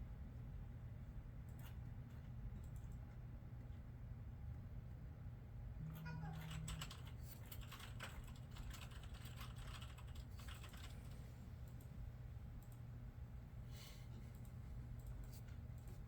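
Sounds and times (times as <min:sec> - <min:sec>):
computer keyboard typing: 0:02.6 - 0:03.0, 0:05.9 - 0:11.9.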